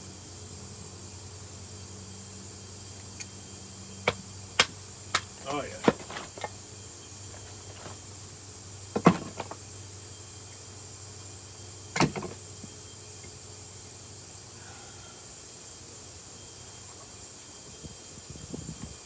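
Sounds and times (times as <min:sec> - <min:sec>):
knife batoning through wood knocks: 0:04.1 - 0:06.5.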